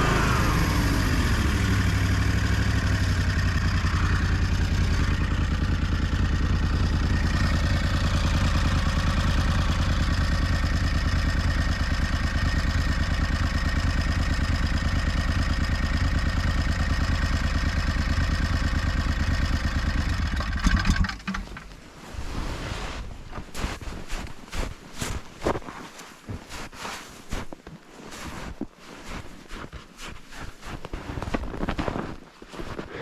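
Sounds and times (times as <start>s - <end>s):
snowmobile engine running: 0.0s - 22.6s.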